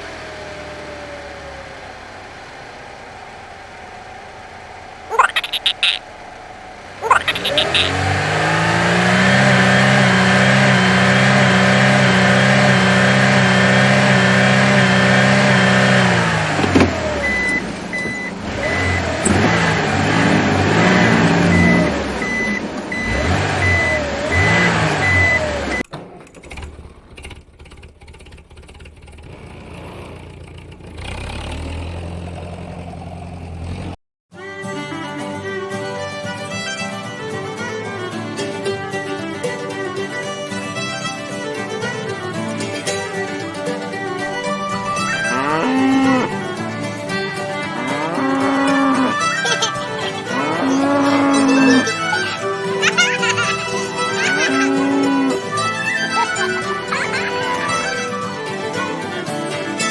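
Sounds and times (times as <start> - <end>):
toy vehicle engine hum: 0.0 - 59.9
reversing beep: 17.1 - 20.1, 20.7 - 25.9.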